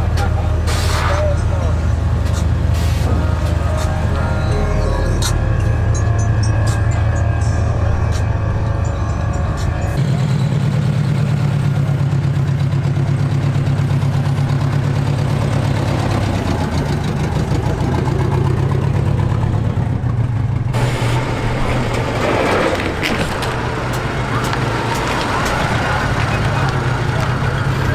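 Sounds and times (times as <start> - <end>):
vehicle engine humming: 0.0 - 27.9
hissing noise: 0.6 - 1.4.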